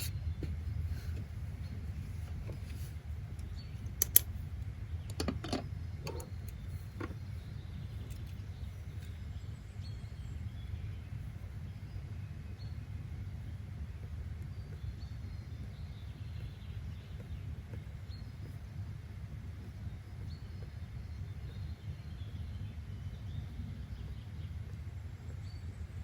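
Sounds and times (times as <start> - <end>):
low background rumble: 0.0 - 26.0
sharp clicks: 3.4 - 7.1.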